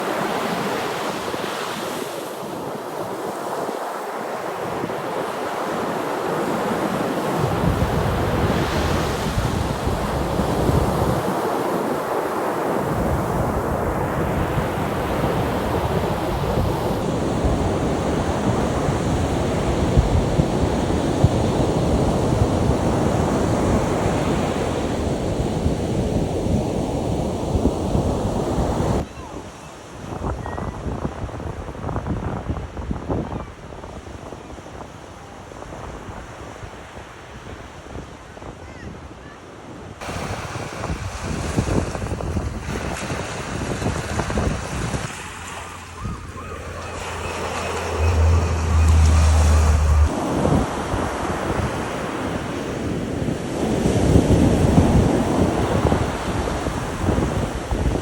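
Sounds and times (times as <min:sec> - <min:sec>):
ocean surf breaking: 0:00.0 - 0:29.7, 0:40.0 - 0:58.0
wind buffeting microphone: 0:04.5 - 0:58.0
deep wind rumble: 0:40.0 - 0:58.0.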